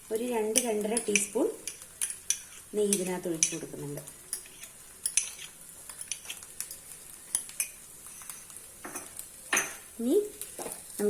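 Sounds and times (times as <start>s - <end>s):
metal spoon clinking against pan: 0.5s - 3.7s, 4.3s - 9.8s.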